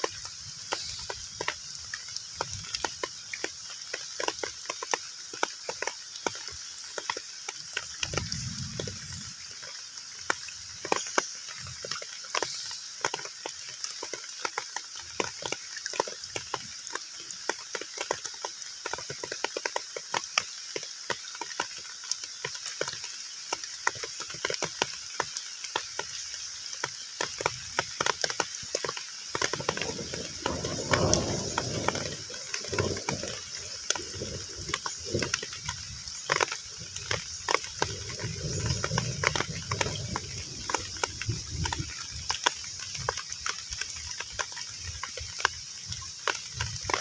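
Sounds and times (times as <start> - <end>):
heavy rain on a pond: 0.0 - 47.0
low uneven rumble: 29.6 - 37.1.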